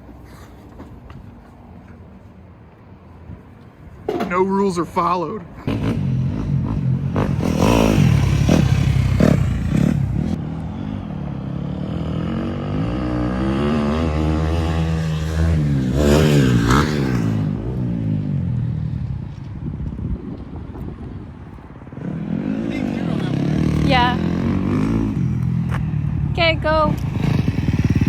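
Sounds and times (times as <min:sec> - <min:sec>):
small motorbike engine revving: 0:05.7 - 0:10.4, 0:11.7 - 0:18.0, 0:26.8 - 0:28.0.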